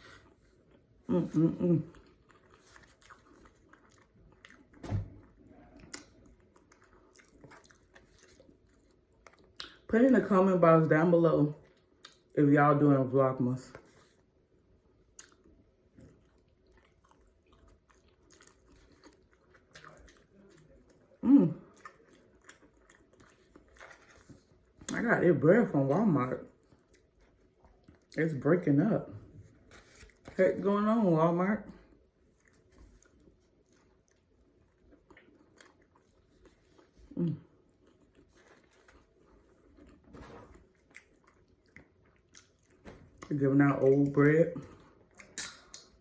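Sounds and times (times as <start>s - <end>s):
chewing sausage: 0.0s - 10.3s, 11.1s - 12.4s, 13.6s - 46.0s
wet mouth clicks: 45.2s - 45.9s.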